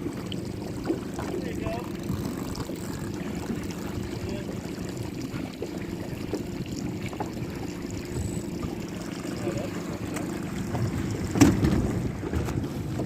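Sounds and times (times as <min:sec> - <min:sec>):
water lapping against boat hull: 0:00.0 - 0:13.0.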